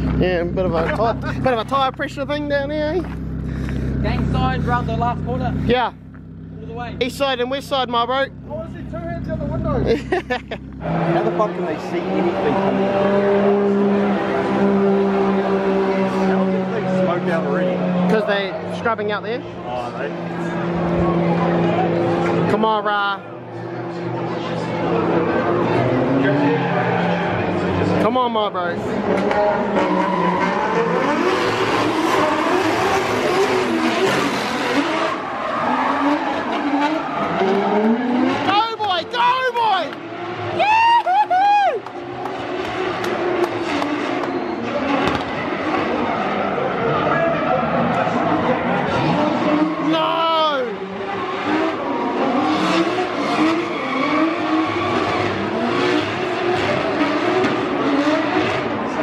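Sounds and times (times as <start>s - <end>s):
car engines revving: 0.0s - 59.0s
tyres squealing: 29.5s - 41.4s, 49.0s - 56.4s.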